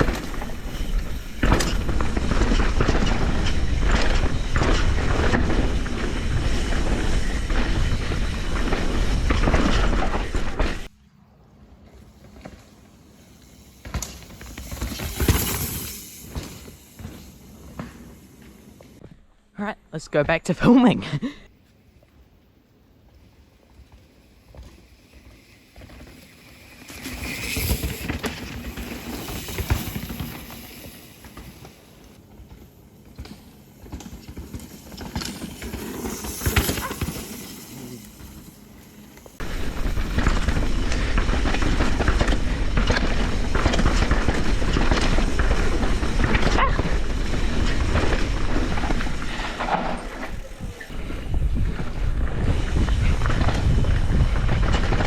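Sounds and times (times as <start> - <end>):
bike tyres on dirt trail: 0.0 - 19.6, 21.3 - 55.0
wind on microphone: 50.2 - 55.0.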